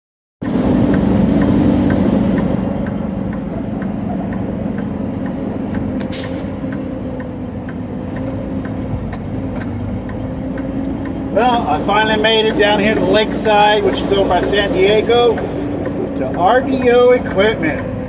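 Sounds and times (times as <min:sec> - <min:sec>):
truck engine running: 0:00.4 - 0:18.0
light ticking: 0:00.9 - 0:11.3.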